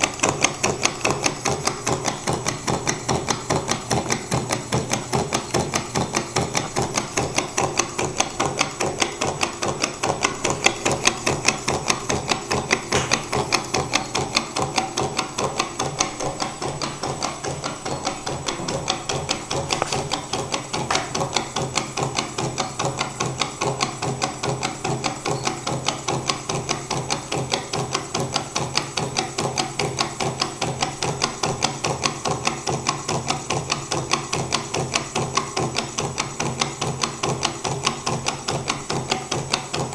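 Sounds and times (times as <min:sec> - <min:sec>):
stirling engine clicking clatter: 0:00.0 - 0:39.9.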